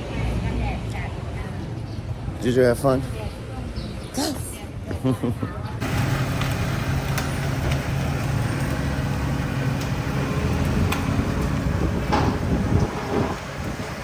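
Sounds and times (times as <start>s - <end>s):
road noise: 0.0s - 14.0s
vehicle engine droning: 5.8s - 14.0s.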